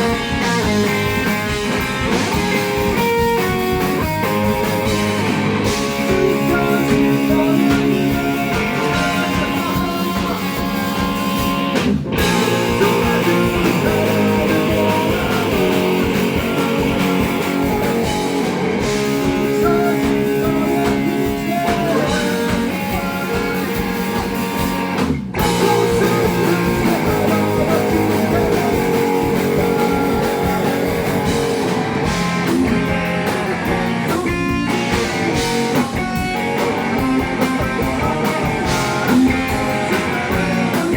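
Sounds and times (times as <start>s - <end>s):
rock band with guitar: 0.0s - 40.9s.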